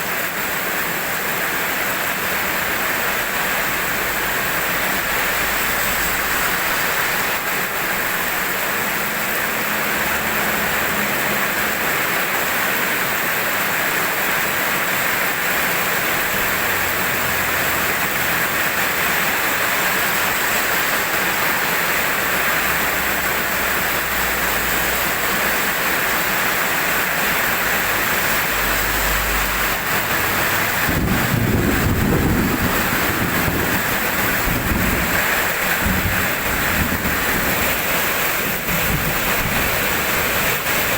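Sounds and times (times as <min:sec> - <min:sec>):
heavy rain falling: 0:00.0 - 0:40.9
low rumble of thunder: 0:30.7 - 0:37.8.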